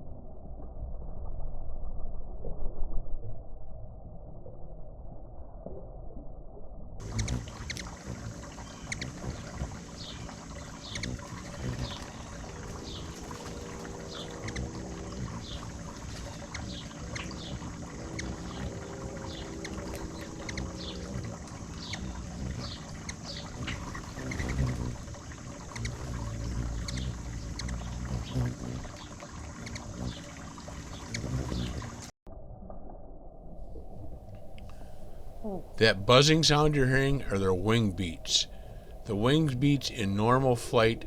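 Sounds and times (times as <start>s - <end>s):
buzzing hum of wing beats: 7.0s - 32.1s, 33.7s - 41.0s
hummingbirds chipping: 7.0s - 32.1s, 34.3s - 41.0s
low rumble: 11.3s - 23.0s.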